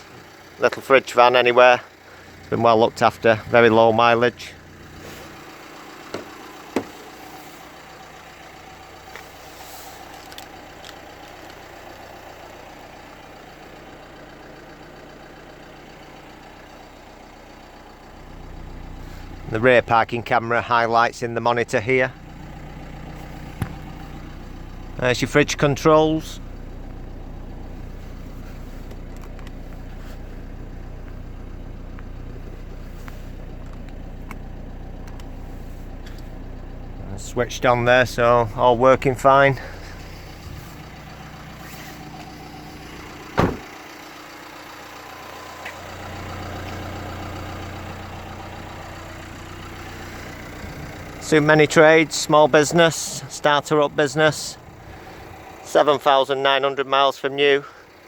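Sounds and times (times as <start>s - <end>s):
diesel engine idling: 0.0s - 58.0s
sharp knocks: 6.1s - 7.0s, 43.4s - 43.7s.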